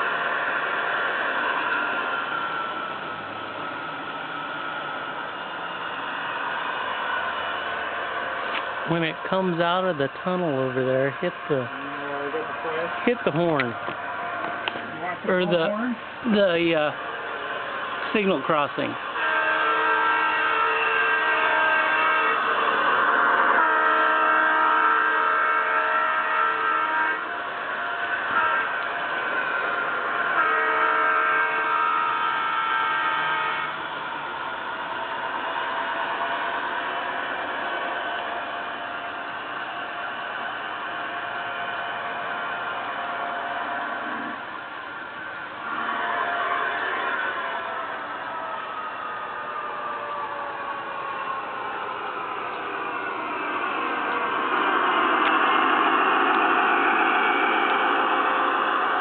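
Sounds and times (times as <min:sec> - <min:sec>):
faint whine: 0:00.0 - 0:59.0
model trains whirring on track: 0:00.0 - 0:59.0
model locomotive horn chord: 0:15.2 - 0:37.2, 0:45.6 - 0:51.4.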